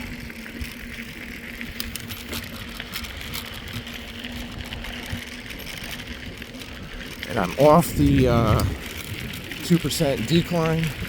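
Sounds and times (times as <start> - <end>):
bike tyre noise on pavement: 0.0 - 11.0
wind on microphone: 7.4 - 9.6.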